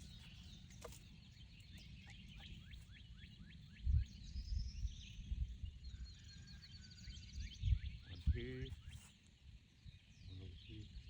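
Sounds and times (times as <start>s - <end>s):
songbird chirping: 0.0s - 11.0s.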